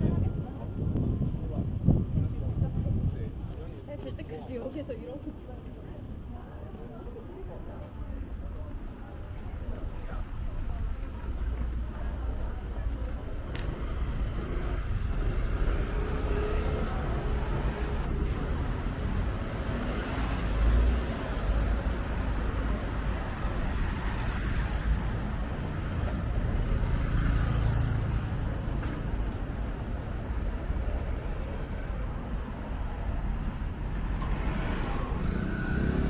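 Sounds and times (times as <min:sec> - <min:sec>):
steady rumble of cars: 0:00.0 - 0:36.0
vehicles passing: 0:05.3 - 0:36.0.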